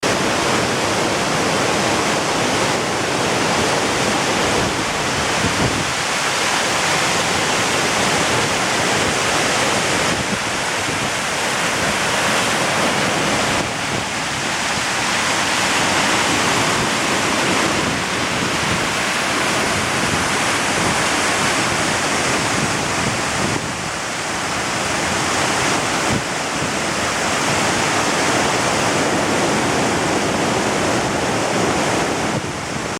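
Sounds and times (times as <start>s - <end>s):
wind buffeting microphone: 0.0s - 24.0s, 25.0s - 32.9s
waterfall rushing: 0.0s - 32.9s.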